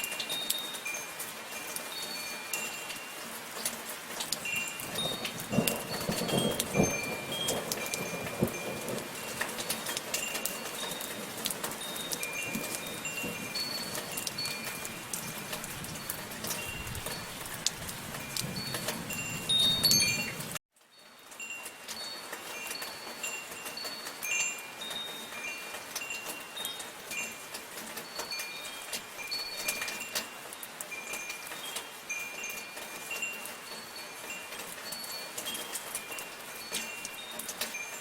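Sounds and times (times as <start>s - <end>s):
wind chimes ringing: 0.0s - 3.5s, 4.3s - 38.0s
rain falling: 0.0s - 38.0s.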